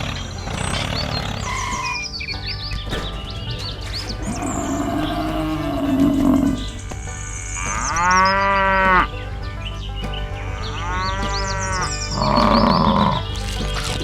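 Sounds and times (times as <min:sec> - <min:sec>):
background music: 0:00.0 - 0:14.0
cow mooing: 0:02.9 - 0:14.0.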